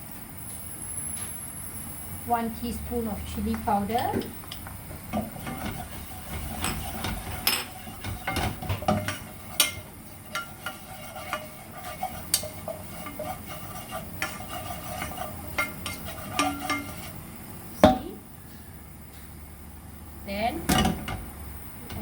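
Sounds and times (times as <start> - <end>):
oil sizzling faintly: 1.7 - 19.5
spatula scraping frying pan: 5.0 - 17.3.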